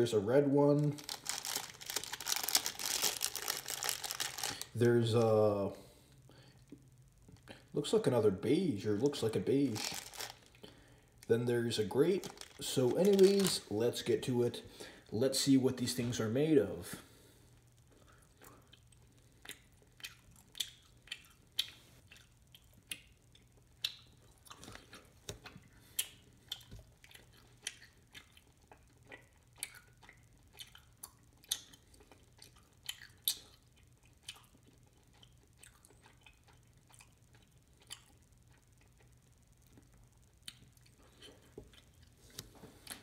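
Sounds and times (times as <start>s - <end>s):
person chewing gummy snacks: 0.9s - 4.8s, 9.6s - 10.9s, 12.1s - 13.7s, 17.8s - 43.0s.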